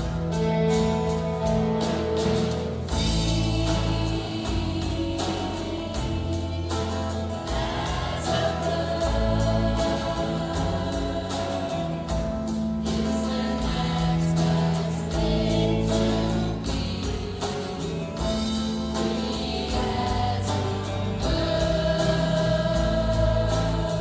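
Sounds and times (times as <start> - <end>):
choir singing held notes: 0.0 - 24.0
instrumental backing with steady beat: 0.0 - 24.0.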